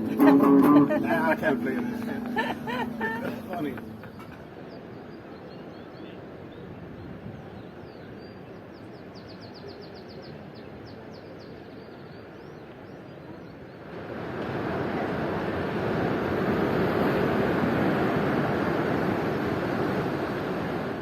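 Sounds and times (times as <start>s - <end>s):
outdoor background hiss: 0.0s - 6.6s.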